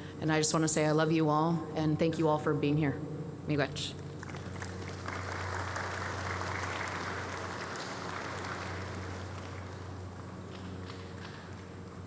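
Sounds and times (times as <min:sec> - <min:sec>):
steady low hum: 0:00.0 - 0:12.0
audience applauding: 0:04.2 - 0:11.7.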